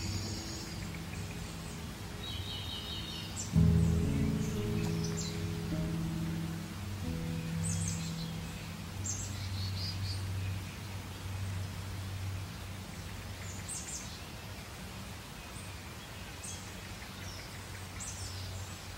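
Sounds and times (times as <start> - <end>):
birds chirping: 0.0 - 11.6
low background noise: 0.0 - 18.9.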